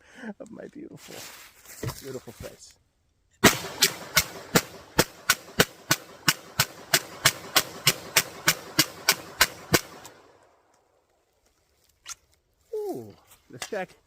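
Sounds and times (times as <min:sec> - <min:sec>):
pistol firing rapid shots: 0:03.4 - 0:10.2.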